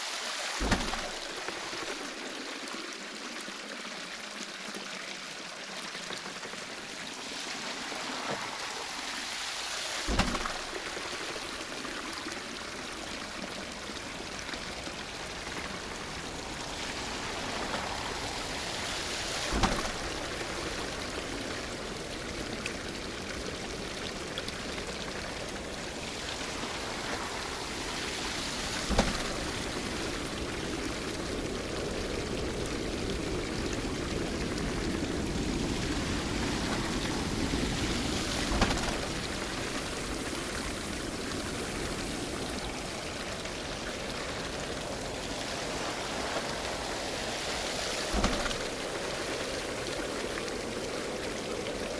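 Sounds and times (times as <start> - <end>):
water running and splashing: 0.0 - 51.9
dull thud: 0.6 - 1.2, 10.1 - 10.8, 19.5 - 20.2.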